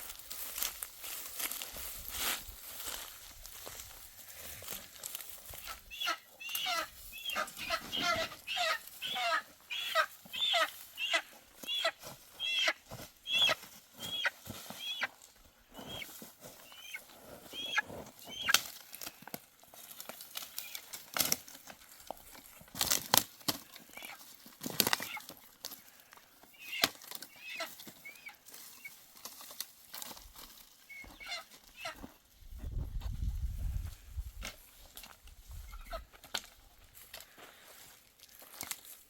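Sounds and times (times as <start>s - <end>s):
birds chirping: 5.6s - 18.6s.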